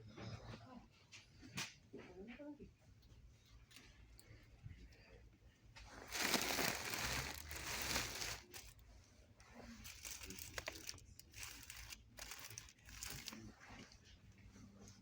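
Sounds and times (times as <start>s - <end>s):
crinkling and rustling handling: 5.8s - 15.0s.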